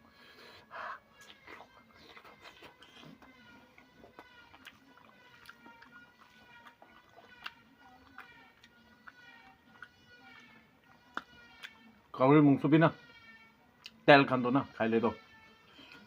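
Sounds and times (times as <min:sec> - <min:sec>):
soft chewing: 0:00.1 - 0:12.0, 0:15.7 - 0:16.0.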